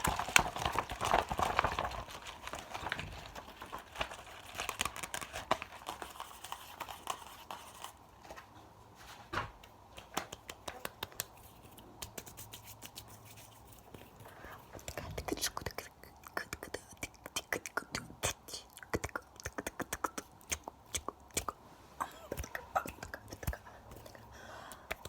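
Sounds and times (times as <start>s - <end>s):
wet mouth clicks and smacks: 14.9s - 21.6s.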